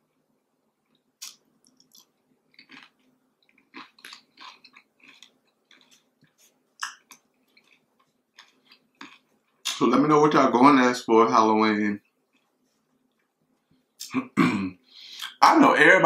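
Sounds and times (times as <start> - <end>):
person chewing crispy food: 0.9 - 9.7
mouth clicks: 1.2 - 2.9.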